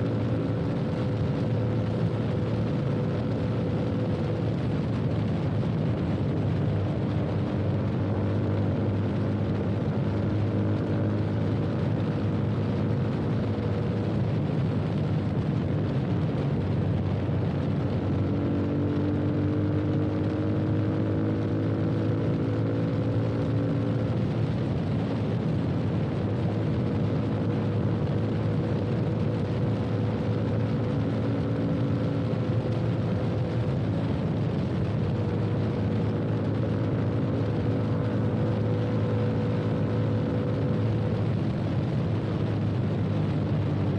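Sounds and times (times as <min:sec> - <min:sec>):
motorcycle engine running: 0:00.0 - 0:43.9
wind and road noise: 0:00.0 - 0:43.9.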